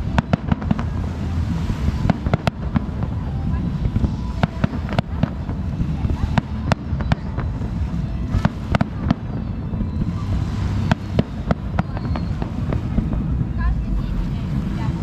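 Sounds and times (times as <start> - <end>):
low background rumble: 0.0 - 15.0
fireworks bangs and pops: 1.7 - 3.1.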